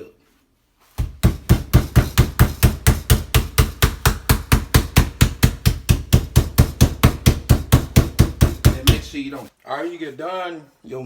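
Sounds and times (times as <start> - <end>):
meat mallet pounding chicken: 1.0 - 9.1.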